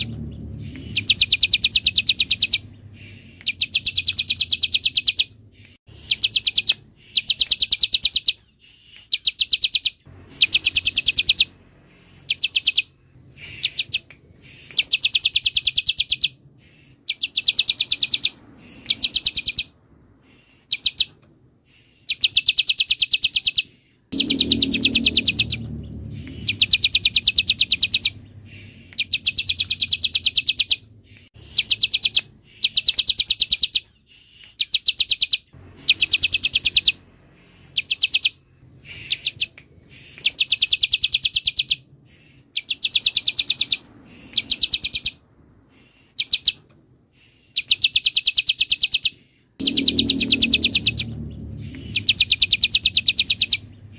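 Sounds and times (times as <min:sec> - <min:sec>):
faint low rumble: 0:00.0 - 0:07.0, 0:10.0 - 0:21.6, 0:24.1 - 0:32.5, 0:35.5 - 0:45.8, 0:49.6 - 0:53.9
bird singing high trill: 0:00.0 - 0:08.4, 0:09.1 - 0:16.4, 0:17.1 - 0:19.8, 0:20.7 - 0:21.2, 0:22.1 - 0:30.9, 0:31.5 - 0:33.9, 0:34.6 - 0:39.5, 0:40.2 - 0:41.9, 0:42.6 - 0:45.2, 0:47.6 - 0:53.9.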